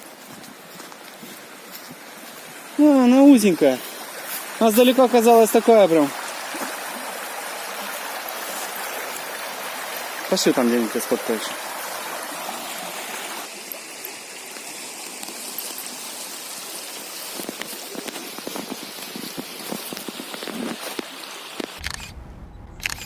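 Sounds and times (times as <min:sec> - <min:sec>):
river water rushing: 0:00.0 - 0:21.8
low rumble: 0:21.8 - 0:23.0.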